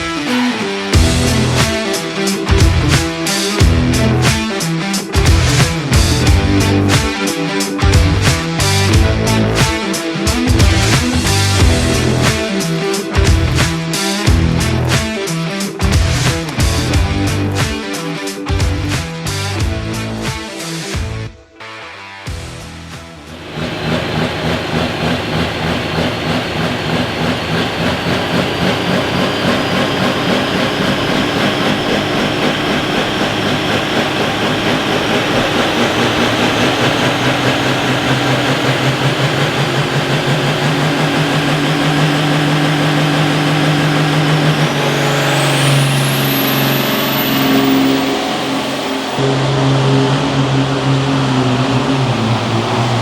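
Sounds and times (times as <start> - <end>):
pulling vehicle engine at high revs: 0.0 - 17.7, 22.4 - 53.0
thin high whine: 44.4 - 53.0.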